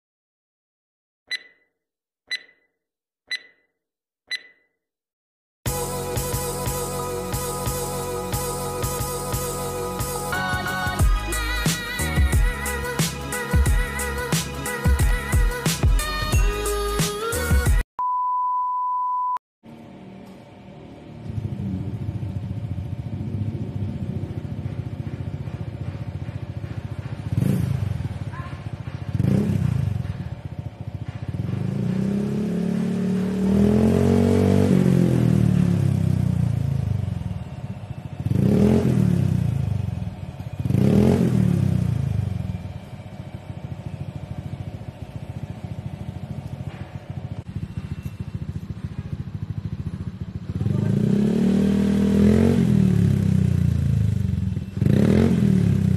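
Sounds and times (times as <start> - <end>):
scooter engine idling and revving: 5.7 - 17.9, 19.7 - 55.9.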